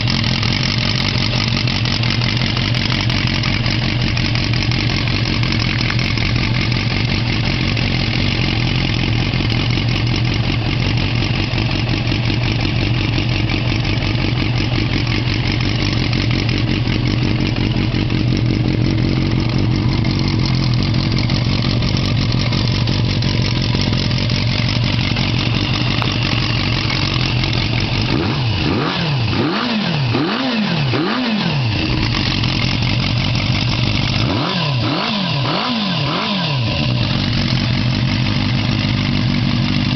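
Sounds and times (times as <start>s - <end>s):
motorcycle engine idling: 0.0s - 39.9s
engine revving blips: 28.0s - 32.1s, 34.2s - 37.2s.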